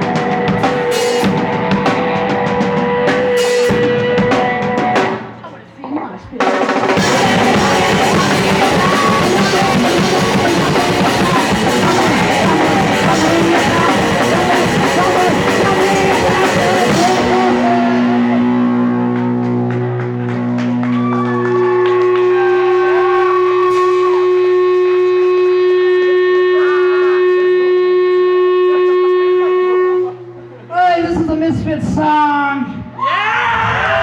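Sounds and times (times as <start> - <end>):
distorted electric guitar: 0.0 - 5.6, 6.4 - 34.0
drum kit: 0.0 - 5.6, 6.2 - 27.7
guitar amplifier feedback: 0.0 - 34.0.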